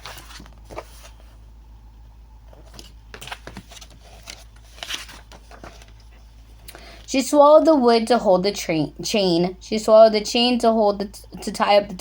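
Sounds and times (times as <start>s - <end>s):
paper book pages rustling: 0.0s - 1.4s, 2.4s - 7.1s.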